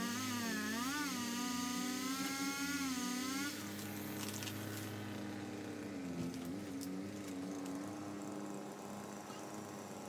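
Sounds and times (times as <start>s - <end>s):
heavy equipment engine running: 3.5s - 10.0s.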